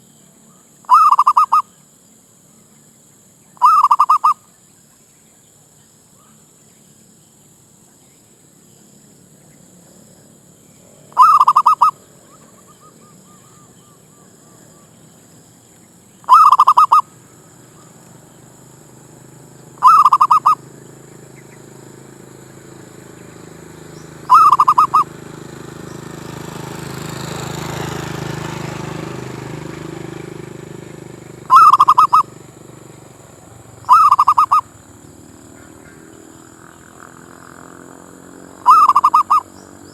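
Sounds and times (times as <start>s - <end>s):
dove cooing: 0.9s - 1.6s, 3.6s - 4.4s, 10.8s - 15.5s, 16.2s - 26.4s, 27.0s - 39.9s.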